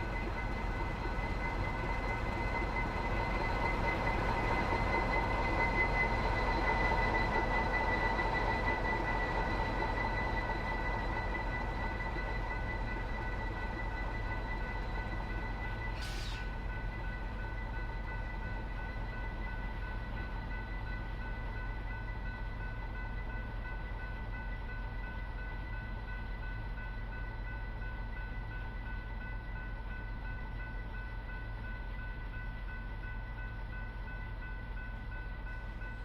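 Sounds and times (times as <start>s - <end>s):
sharp hiss or click: 16.0s - 16.5s.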